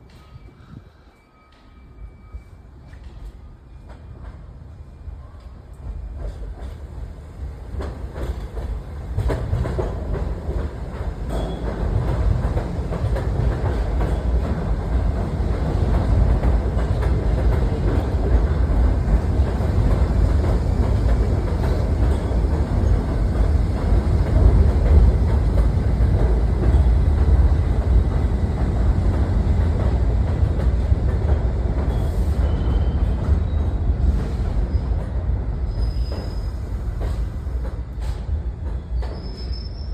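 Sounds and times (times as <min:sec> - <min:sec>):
subway train rumbling on rails: 0:00.0 - 0:39.9.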